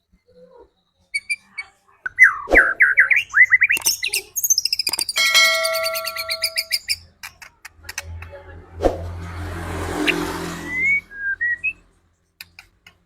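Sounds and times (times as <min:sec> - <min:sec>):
bird whistling song: 0:01.0 - 0:07.1, 0:10.1 - 0:11.8.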